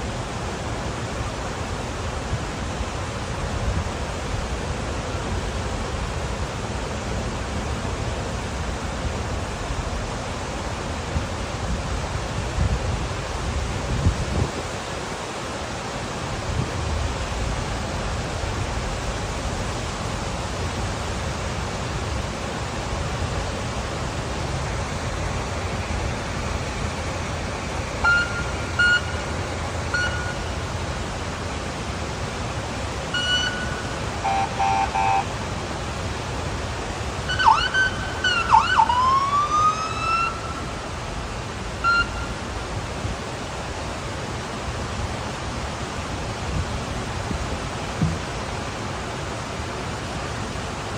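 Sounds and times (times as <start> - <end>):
steady rushing noise: 0.0 - 38.4
emergency vehicle siren: 28.0 - 29.2, 33.1 - 35.3, 37.3 - 40.8
short pitched beeps: 28.0 - 29.3, 29.9 - 30.6, 33.1 - 35.3, 41.8 - 42.3.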